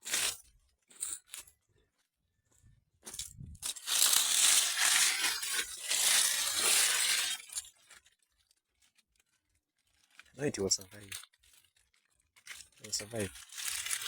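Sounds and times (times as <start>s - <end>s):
leaves rustling and crunching: 3.1s - 8.0s, 12.5s - 14.0s.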